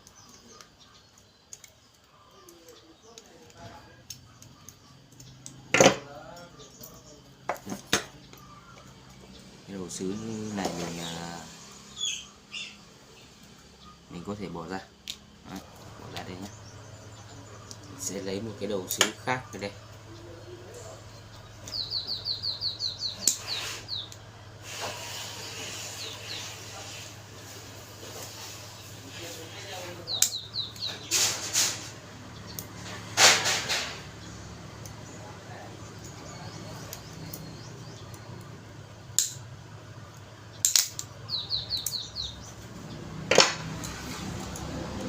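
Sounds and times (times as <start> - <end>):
small bird chirping: 0.0 - 33.1, 33.7 - 45.0
steady low hum: 3.0 - 45.0
stove parts clicking and knocking: 5.1 - 6.1, 7.4 - 9.3, 39.2 - 39.4, 40.6 - 41.1, 43.3 - 44.6.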